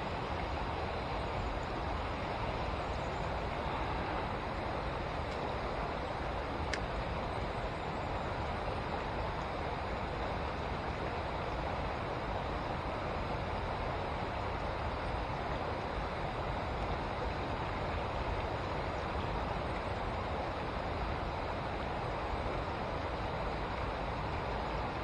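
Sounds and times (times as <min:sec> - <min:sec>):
river rushing through rapids: 0:00.0 - 0:25.0.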